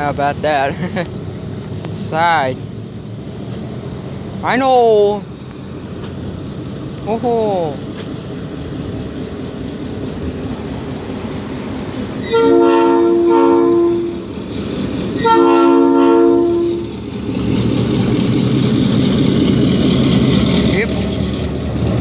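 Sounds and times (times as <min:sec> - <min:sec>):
train rumble: 0:00.0 - 0:22.0
train horn blasts: 0:12.2 - 0:14.3, 0:15.2 - 0:17.0.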